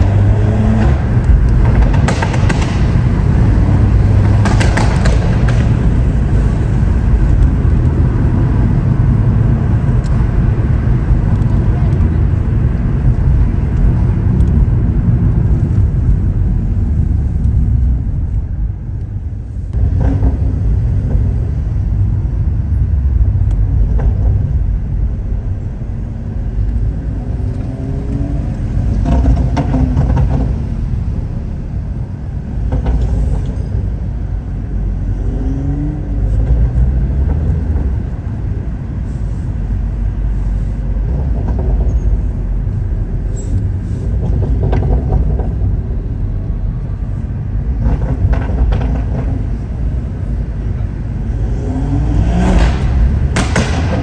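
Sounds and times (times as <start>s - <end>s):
car engine pulling hard: 0.0s - 54.0s
exhaust cracks: 0.0s - 54.0s.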